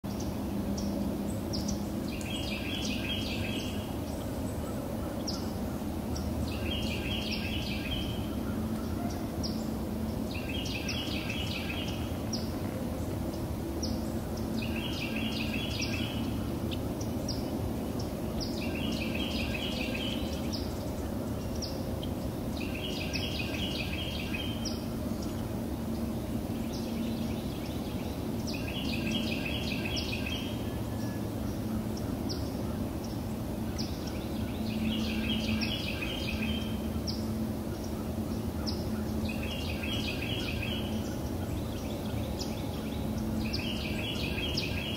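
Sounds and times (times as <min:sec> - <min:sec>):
low background noise: 0:00.0 - 0:44.9
songbird singing repeated notes: 0:00.1 - 0:44.9.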